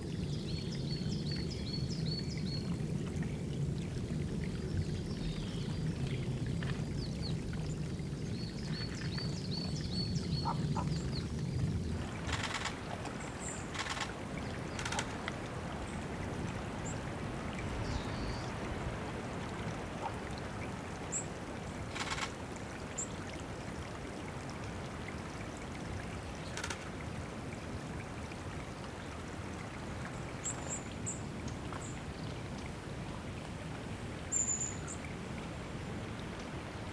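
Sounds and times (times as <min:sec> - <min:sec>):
water running into pool: 0:10.5 - 0:17.6.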